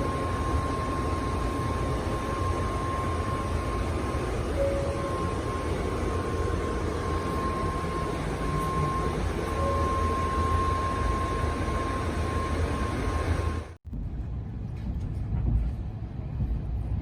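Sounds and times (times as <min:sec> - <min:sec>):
faint high whine: 0:00.0 - 0:13.8
train interior low rumble: 0:00.0 - 0:17.0.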